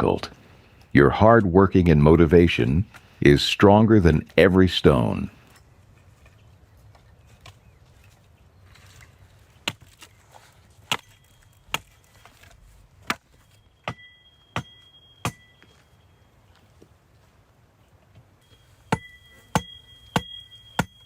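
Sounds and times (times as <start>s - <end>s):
hand tool striking blows: 13.0s - 15.8s, 18.4s - 21.0s.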